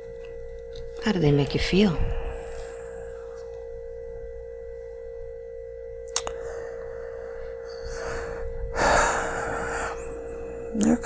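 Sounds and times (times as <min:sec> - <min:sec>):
steady pure tone: 0:00.0 - 0:11.0
breathy rush of noise: 0:02.0 - 0:03.5, 0:06.3 - 0:10.8
sharp click: 0:06.1 - 0:06.4.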